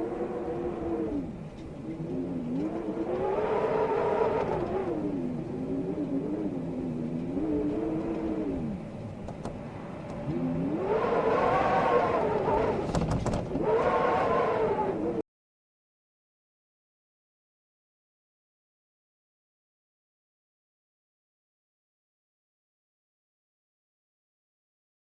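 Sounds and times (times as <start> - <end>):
storm wind howling: 0.0 - 15.2.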